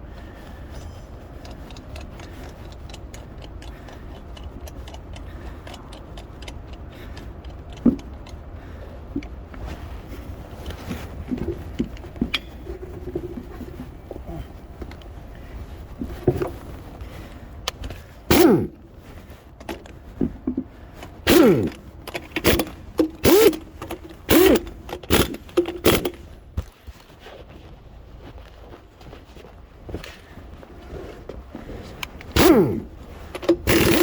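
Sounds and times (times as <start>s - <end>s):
tyre tool bursts: 18.3s - 18.9s, 19.6s - 19.9s, 21.0s - 26.3s, 32.3s - 34.0s.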